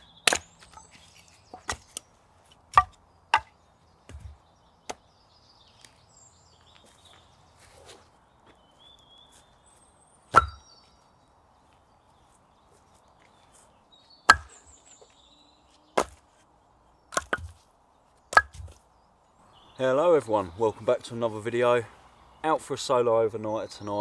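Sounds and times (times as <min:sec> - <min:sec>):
axe chopping firewood: 0:00.0 - 0:02.1, 0:02.7 - 0:05.0, 0:10.3 - 0:10.6, 0:14.3 - 0:14.8, 0:16.0 - 0:16.3, 0:17.1 - 0:17.6, 0:18.3 - 0:18.8
faint bird chirps: 0:03.6 - 0:16.0, 0:18.8 - 0:22.6.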